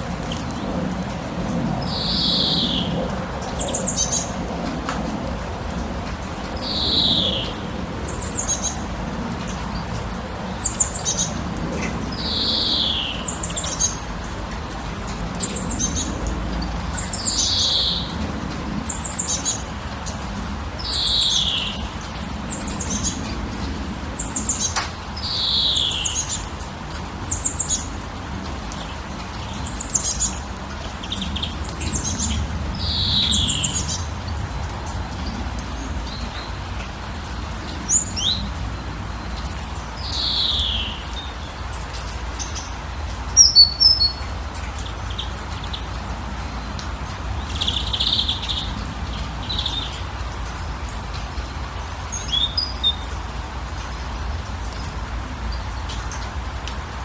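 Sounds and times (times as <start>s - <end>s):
birds chirping: 1.8s - 4.4s, 28.7s - 50.8s.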